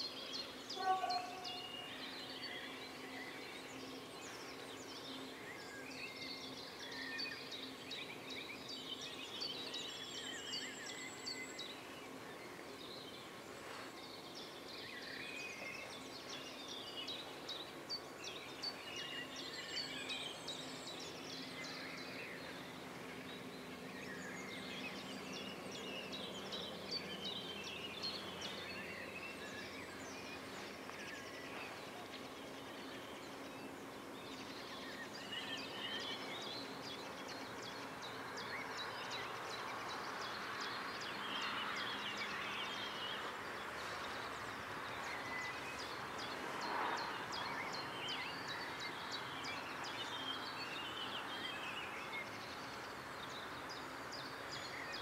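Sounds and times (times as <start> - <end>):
outdoor background hiss: 0.0 - 55.0
small birds chirping and singing: 0.0 - 55.0.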